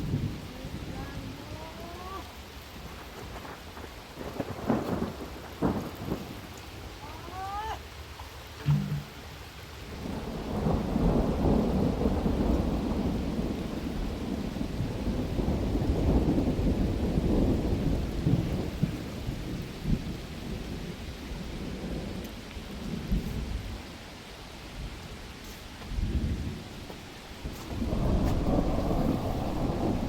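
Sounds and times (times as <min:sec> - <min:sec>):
heavy rain falling: 0:00.0 - 0:30.0
thunder rolling: 0:04.1 - 0:06.5, 0:10.0 - 0:20.8, 0:25.9 - 0:30.0.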